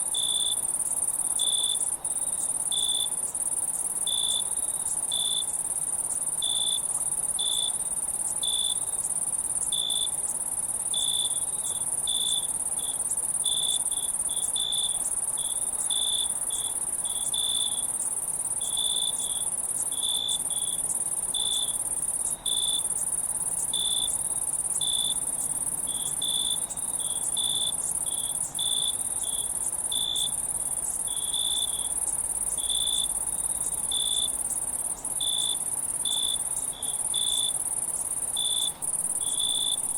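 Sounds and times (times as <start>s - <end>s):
cricket chirping in pulses: 0.1s - 39.9s.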